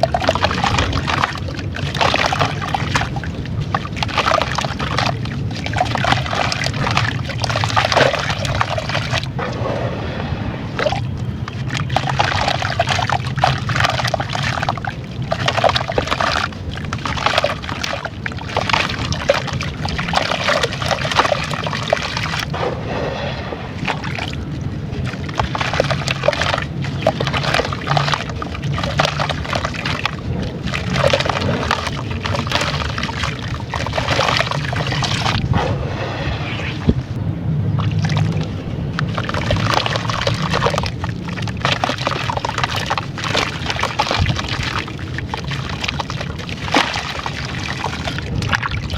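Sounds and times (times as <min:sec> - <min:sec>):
water sloshing: 0:00.0 - 0:48.9.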